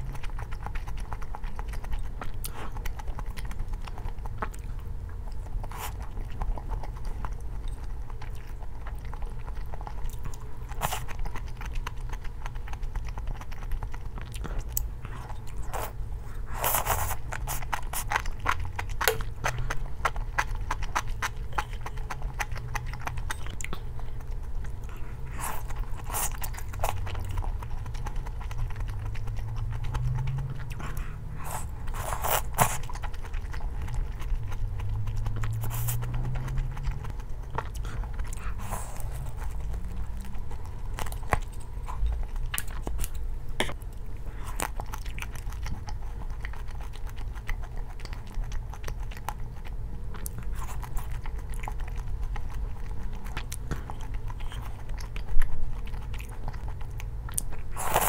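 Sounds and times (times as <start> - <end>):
person chewing crunchy food: 0.0 - 58.0
small mouth clicks: 23.2 - 24.1.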